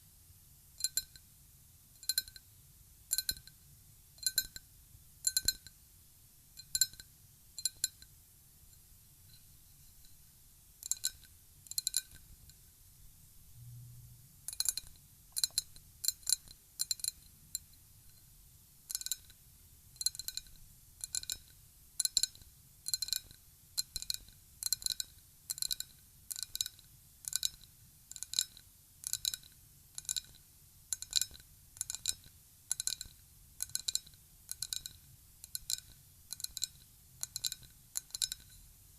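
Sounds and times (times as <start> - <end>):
glass tapping clinks: 0.8 - 1.2, 5.3 - 5.7, 10.8 - 12.2, 37.3 - 38.6.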